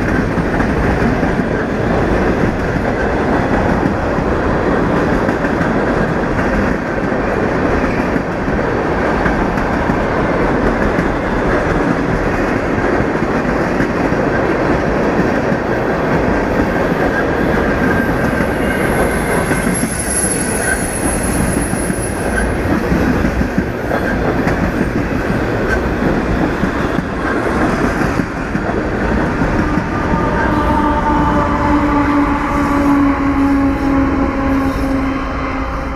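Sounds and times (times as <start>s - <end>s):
high wheel squeal: 17.9s - 22.5s.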